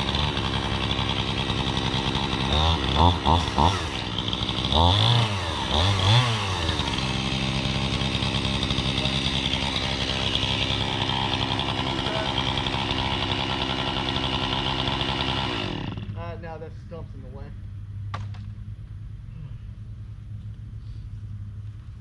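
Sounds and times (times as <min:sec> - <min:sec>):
chainsaw engine revving: 0:00.0 - 0:16.6.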